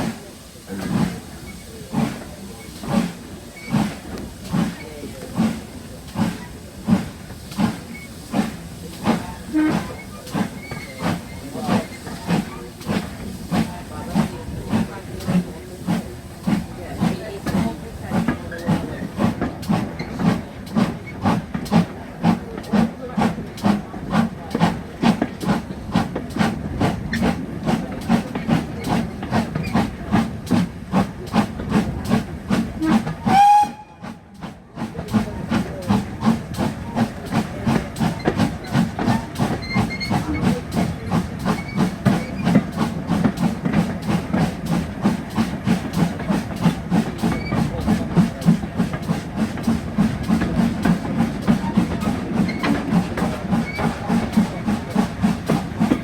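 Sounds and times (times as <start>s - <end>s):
steam hiss: 0.0s - 56.0s
steam locomotive chuffing: 0.0s - 56.0s
locomotive whistle: 32.8s - 34.2s.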